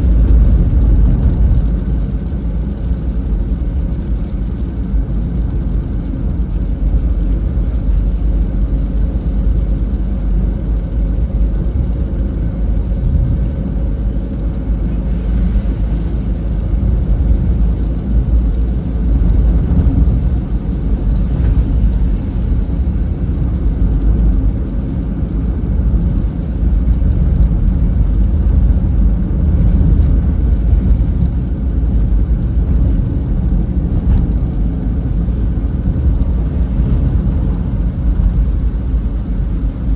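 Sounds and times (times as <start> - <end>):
car road and engine rumble: 0.0 - 39.9
faint tyre hiss on wet road: 0.0 - 39.9.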